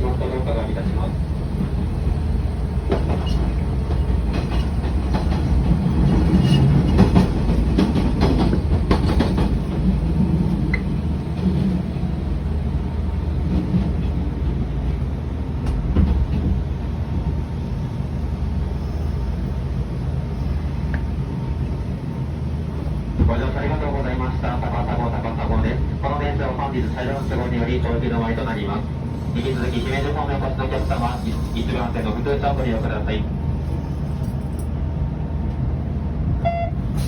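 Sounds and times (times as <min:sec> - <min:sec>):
train rumbling: 0:00.0 - 0:37.0
wheels clicking over rail joints: 0:01.5 - 0:11.9.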